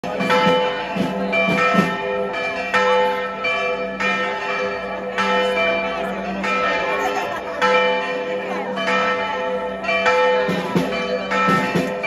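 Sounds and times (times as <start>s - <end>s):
church bells ringing a peal: 0.0s - 12.0s.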